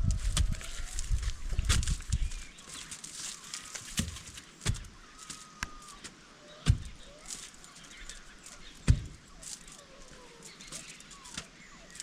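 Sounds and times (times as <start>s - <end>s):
faint bird chirps: 5.0s - 12.0s
sharp knocks: 8.8s - 9.2s.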